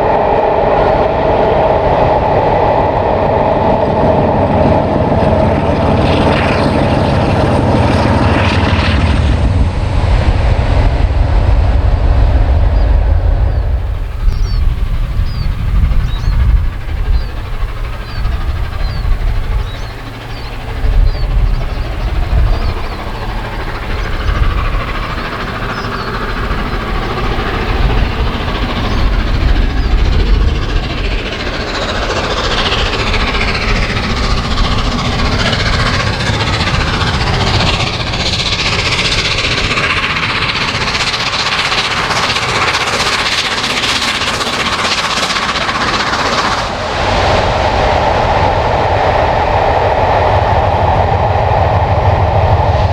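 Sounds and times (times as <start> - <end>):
train wheels clattering: 9.7 - 52.9.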